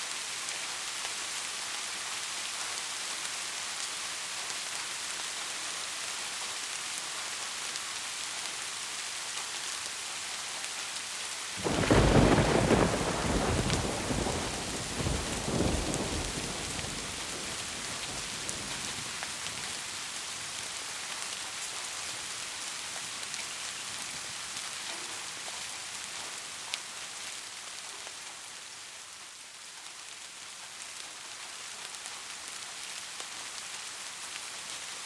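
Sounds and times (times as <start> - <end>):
steady rain: 0.0 - 35.0
thunder rumble: 11.6 - 19.2.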